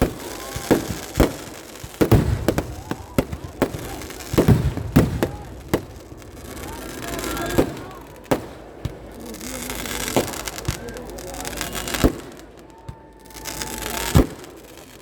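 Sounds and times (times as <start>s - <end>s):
firework bangs: 0.0s - 15.0s
firework crackling: 0.0s - 15.0s
firework whistle: 9.6s - 15.0s.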